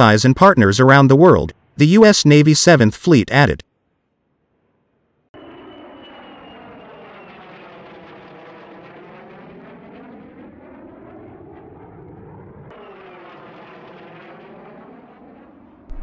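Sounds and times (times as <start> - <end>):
jet aircraft flying past: 5.4 - 16.0.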